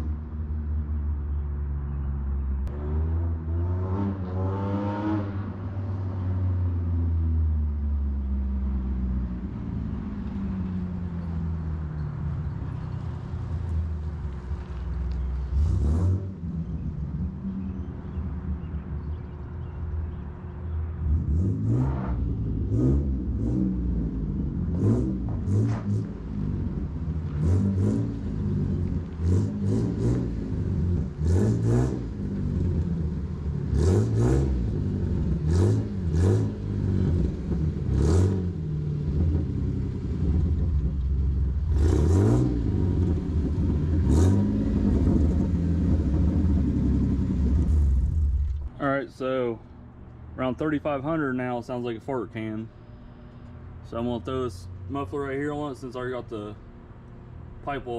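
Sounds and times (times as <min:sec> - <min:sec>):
raspy car engine revving: 0:14.7 - 0:19.2, 0:21.0 - 0:48.8.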